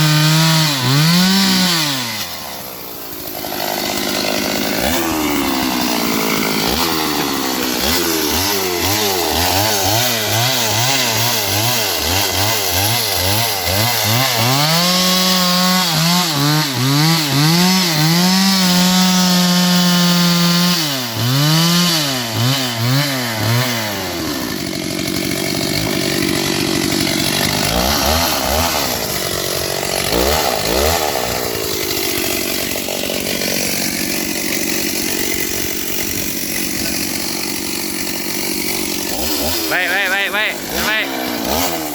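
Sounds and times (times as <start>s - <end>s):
chainsaw engine revving: 0.0s - 41.9s.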